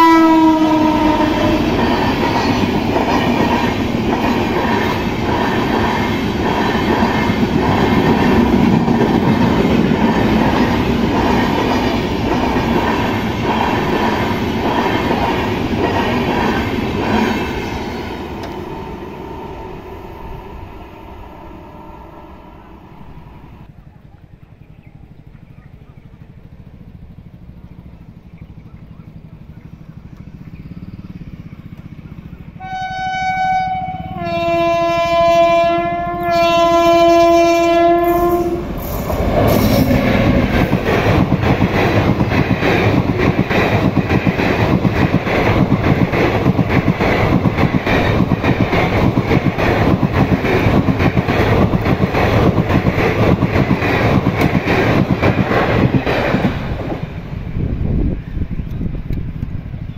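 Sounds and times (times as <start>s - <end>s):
train horn blasts: 0.0s - 1.9s, 18.4s - 23.3s, 32.6s - 40.5s
passing train rumble: 0.0s - 59.9s
wheels clacking over rail joints: 0.6s - 19.1s, 37.8s - 57.2s.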